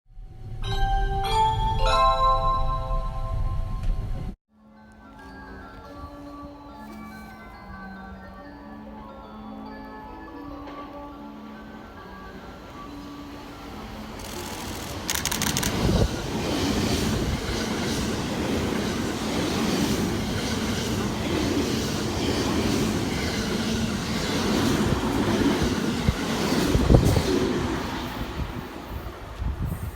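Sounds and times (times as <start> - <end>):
train wheels on rails: 13.0 - 29.9
sharp knocks of train wheels: 14.2 - 27.2.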